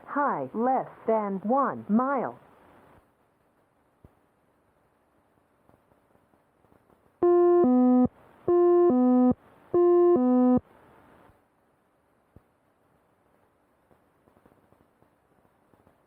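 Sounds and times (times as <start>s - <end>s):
electronic two-tone alert: 7.2s - 10.6s.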